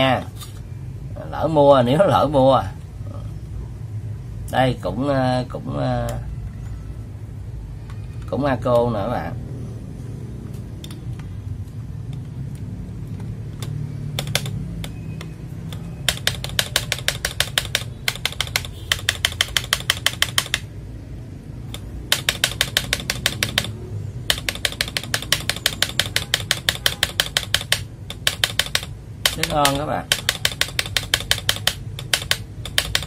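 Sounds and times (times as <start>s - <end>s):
mechanical keyboard typing: 12.2s - 20.8s, 21.6s - 33.0s.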